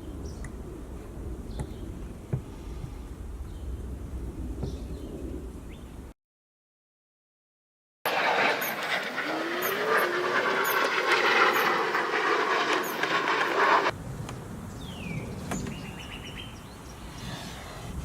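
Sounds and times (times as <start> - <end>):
motor whirring: 8.1 - 13.9.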